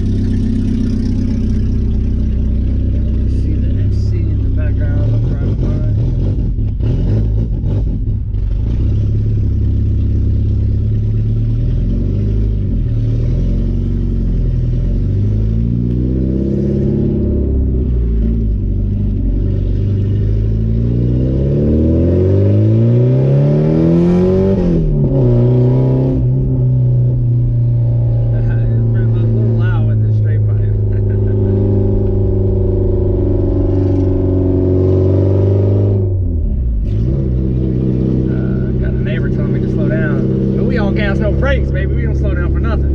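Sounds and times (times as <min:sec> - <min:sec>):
loud car engine revving: 0:00.0 - 0:42.9.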